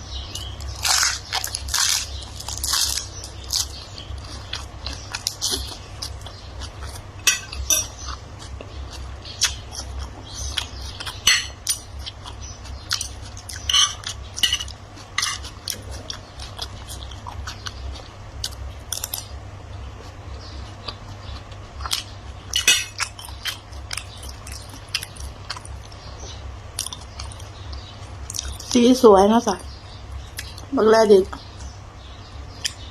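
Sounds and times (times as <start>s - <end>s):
person chewing: 0.1s - 28.8s, 30.2s - 30.7s, 32.5s - 32.9s
cutlery clinking on plates: 7.2s - 8.0s, 11.2s - 11.6s, 13.7s - 15.4s, 22.6s - 23.0s.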